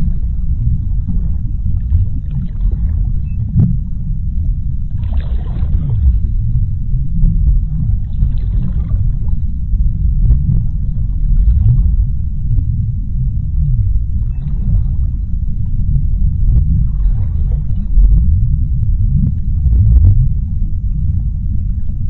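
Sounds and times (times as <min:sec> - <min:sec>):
deep underwater rumble: 0:00.0 - 0:22.0.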